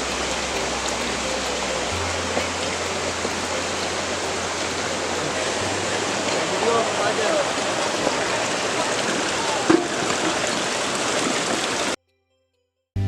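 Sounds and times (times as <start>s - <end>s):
background music with bass: 0.0s - 9.6s
flowing water: 0.0s - 12.0s.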